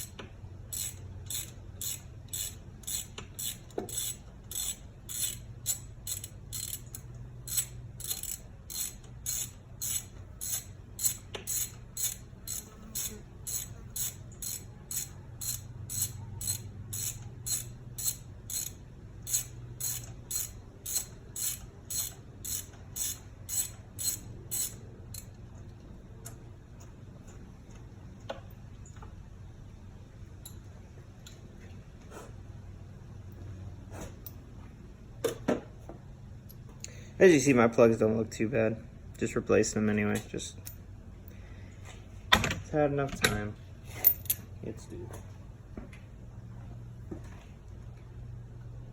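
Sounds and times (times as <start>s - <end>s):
hand ratchet clicking: 0.0s - 25.4s.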